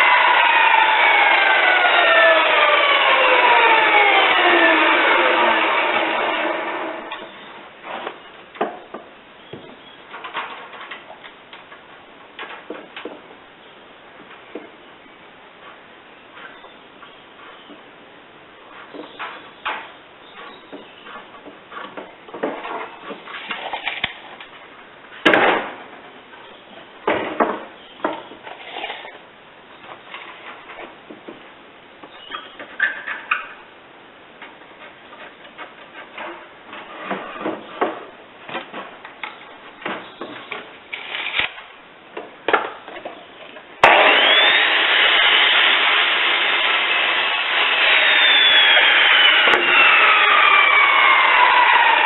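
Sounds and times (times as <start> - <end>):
power tool spinning down: 0.0 - 7.2, 43.8 - 52.0
irregular knocks and scrapes: 18.6 - 24.8, 34.4 - 41.3.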